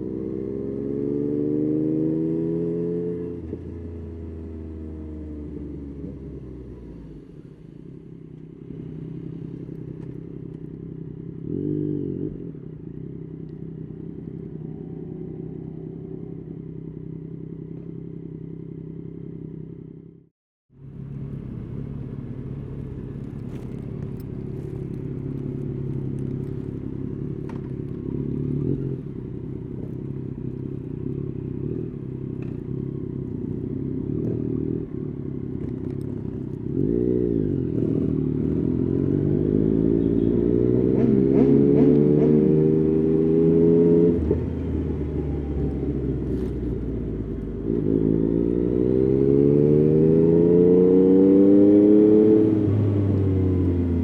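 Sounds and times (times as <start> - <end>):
motorcycle engine running: 5.6 - 41.1.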